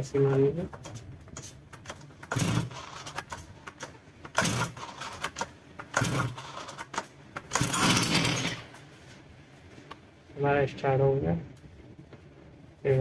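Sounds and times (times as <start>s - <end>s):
engine pull-start cranking: 4.3s - 8.7s.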